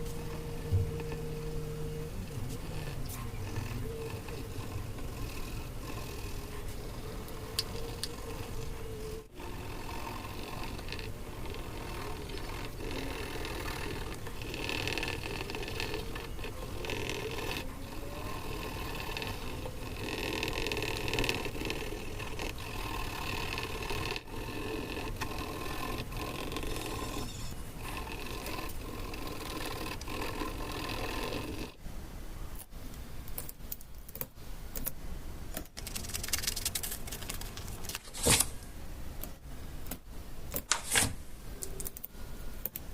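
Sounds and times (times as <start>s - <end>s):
paper tapping and crinkling: 35.7s - 38.5s
paper scraping and rustling: 35.8s - 38.6s, 40.7s - 41.2s.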